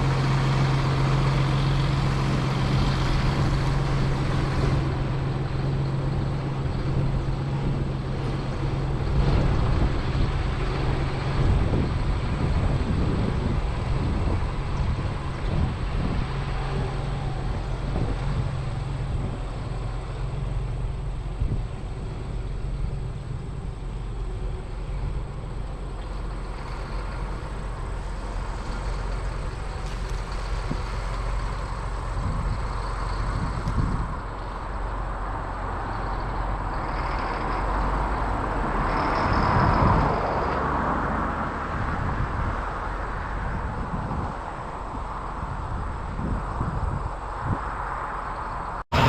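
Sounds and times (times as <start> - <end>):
road noise: 0.0 - 49.0
vehicle engine running: 0.0 - 49.0
wind: 0.0 - 49.0.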